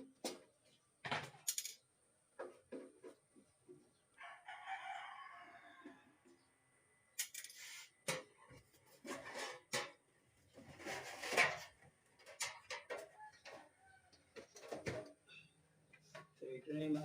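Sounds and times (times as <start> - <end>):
clicks knocks and scrapes of tools: 7.2 - 10.0, 10.6 - 15.3.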